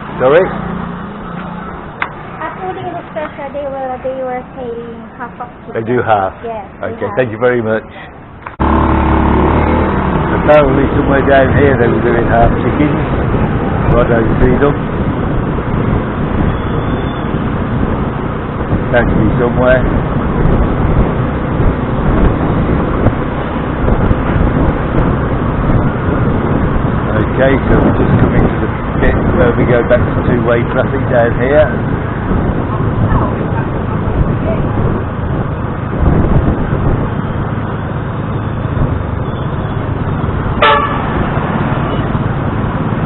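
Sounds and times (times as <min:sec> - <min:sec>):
road and traffic noise: 0:00.0 - 0:43.0
scooter engine rumble: 0:08.1 - 0:43.0
motor scooter engine: 0:08.6 - 0:13.8
vehicle horn toot: 0:40.6 - 0:41.2.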